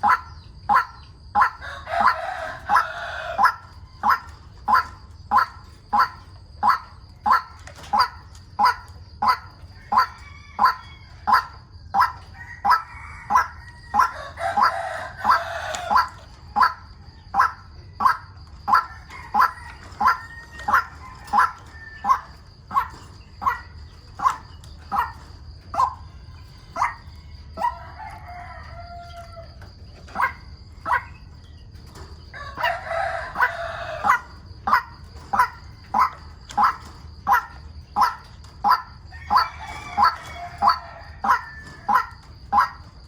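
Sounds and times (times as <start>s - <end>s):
waterhen calling: 0.0s - 16.8s
rooster crowing: 0.1s - 5.5s, 9.6s - 31.2s, 32.2s - 43.0s.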